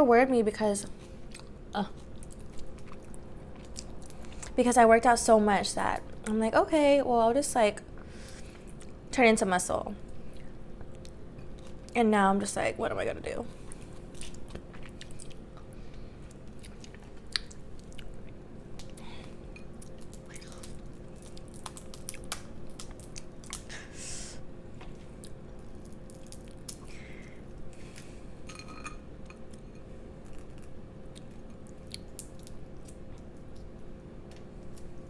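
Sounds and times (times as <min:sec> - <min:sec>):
faint steady hum: 0:00.0 - 0:35.0
person chewing food: 0:01.2 - 0:04.6, 0:13.6 - 0:23.7, 0:24.8 - 0:28.2.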